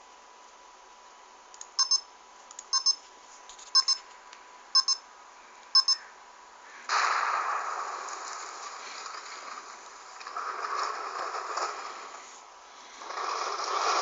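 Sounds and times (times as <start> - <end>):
electronic double beeps: 4.8 - 5.0, 5.8 - 6.0.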